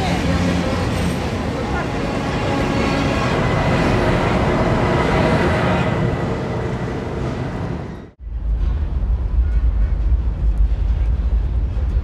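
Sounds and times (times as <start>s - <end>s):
train passing on bridge: 0.0s - 12.0s.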